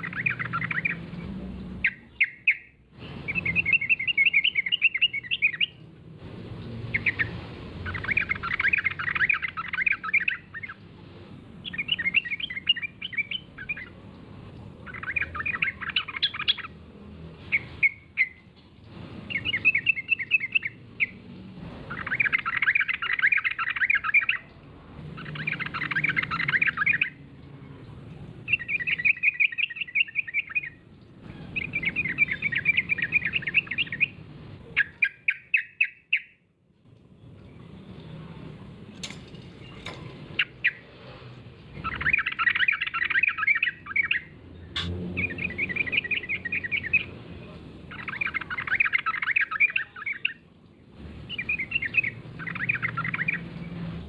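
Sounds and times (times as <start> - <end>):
bulbul singing warbling notes: 44.8 - 47.0.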